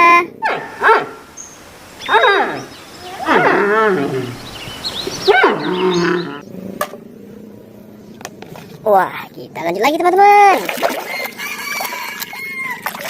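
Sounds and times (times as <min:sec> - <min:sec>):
animal growling calls: 0:00.0 - 0:08.0.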